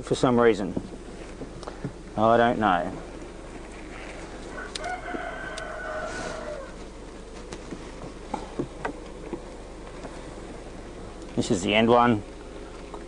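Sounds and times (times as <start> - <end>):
rooster crowing: 4.4 - 7.0.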